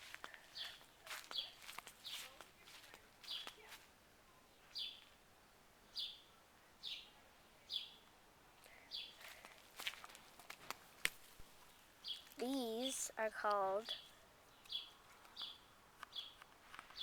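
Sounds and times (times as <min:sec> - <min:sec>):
small bird chirping: 0:11.7 - 0:17.0.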